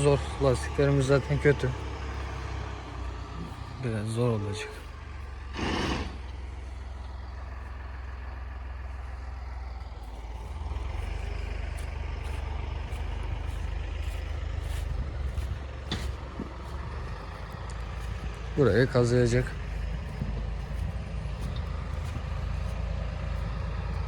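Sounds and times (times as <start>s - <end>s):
vehicle engine running: 0.0s - 24.0s
rushing burst of noise: 5.5s - 6.3s.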